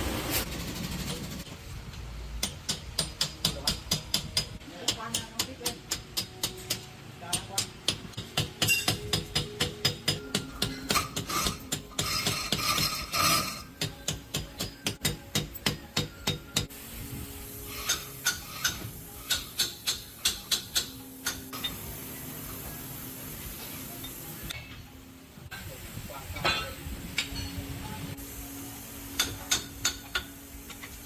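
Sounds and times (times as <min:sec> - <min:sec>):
steady hiss: 0:15.0 - 0:31.0.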